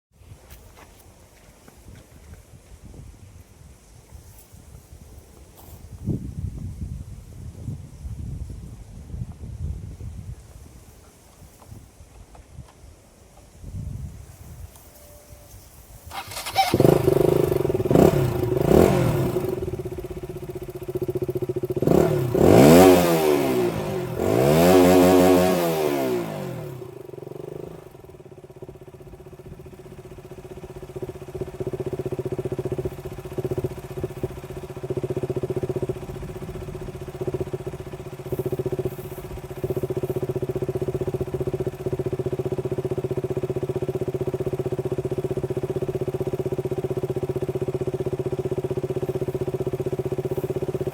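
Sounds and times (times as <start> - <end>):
motorcycle engine revving and idling: 15.8 - 50.9.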